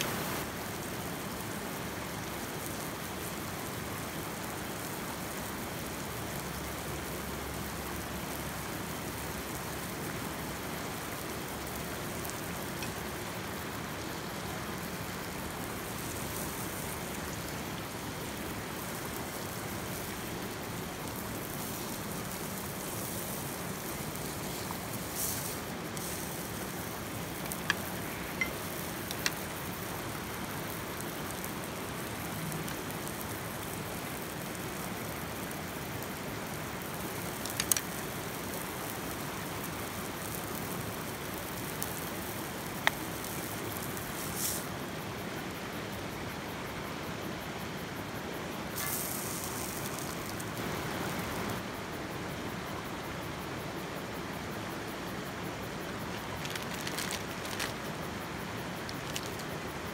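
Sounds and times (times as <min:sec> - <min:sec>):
steady rushing noise: 0:00.0 - 0:01.0
sharp clicks and pops: 0:27.3 - 0:29.5, 0:37.4 - 0:38.0, 0:42.7 - 0:43.6, 0:56.2 - 0:57.8, 0:58.8 - 0:59.6.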